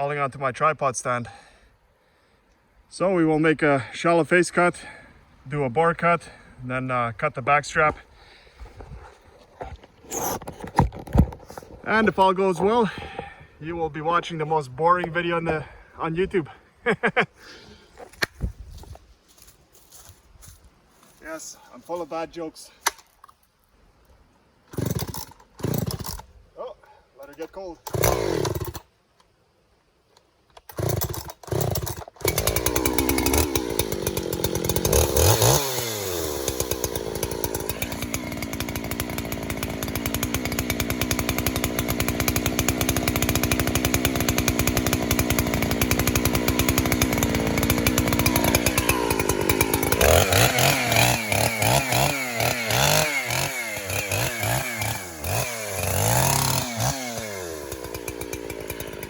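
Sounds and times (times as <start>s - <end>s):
chainsaw cutting into trunk: 8.8s - 12.2s, 24.7s - 26.3s, 27.8s - 28.9s, 30.6s - 59.0s
chainsaw pull-starting: 9.6s - 12.2s, 24.7s - 26.3s, 27.2s - 28.9s, 30.6s - 59.0s.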